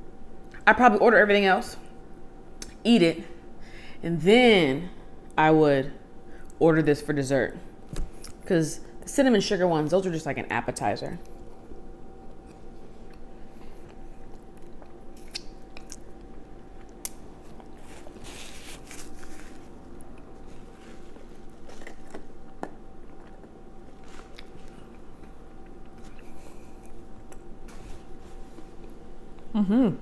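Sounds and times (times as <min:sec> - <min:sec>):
faint steady hum: 0:00.0 - 0:30.0
person chewing soft pretzel: 0:12.2 - 0:27.5
mouth clicks and smacks: 0:15.2 - 0:16.0.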